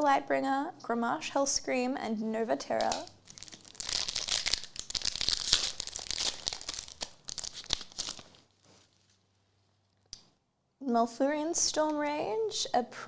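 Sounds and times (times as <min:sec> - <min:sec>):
foil wrapper crinkling and tearing: 0:02.7 - 0:09.9.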